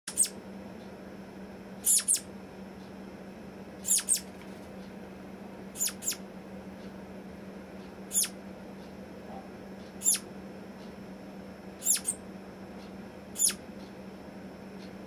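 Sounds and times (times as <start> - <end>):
flying squirrel chirps: 0.1 - 0.4, 1.8 - 2.3, 3.8 - 4.3, 5.7 - 6.2, 8.1 - 8.4, 10.0 - 10.3, 11.8 - 12.2, 13.3 - 13.6.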